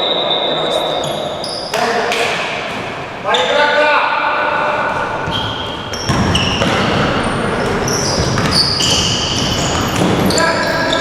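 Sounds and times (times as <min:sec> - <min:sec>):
shoes squeaking on floor: 0:00.0 - 0:02.0, 0:04.7 - 0:11.0
ball bouncing: 0:04.9 - 0:10.8.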